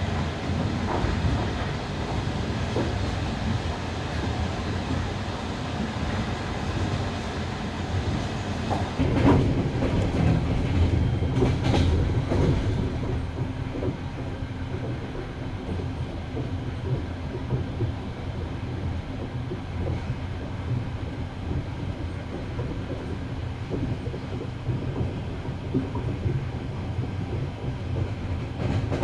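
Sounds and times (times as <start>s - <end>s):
train wheels rumbling on rails: 0.0s - 29.0s
wheels clacking over rail joints: 8.2s - 26.6s.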